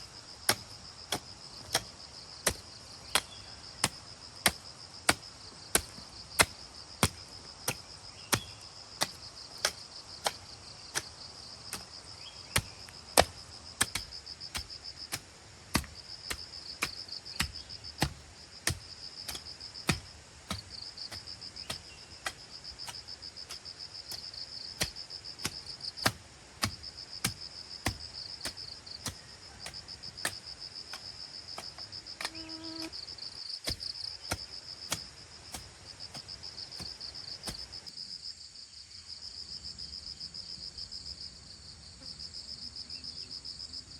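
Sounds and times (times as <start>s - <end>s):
insects chirring: 0.0s - 43.9s
sharp chopping strikes: 0.5s - 11.1s, 11.7s - 11.9s, 12.5s - 32.9s, 33.6s - 37.7s.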